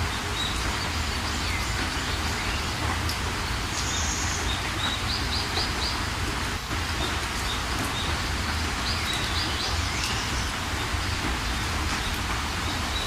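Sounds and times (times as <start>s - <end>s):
steady rain: 0.0s - 13.0s
birds chirping: 7.4s - 13.0s.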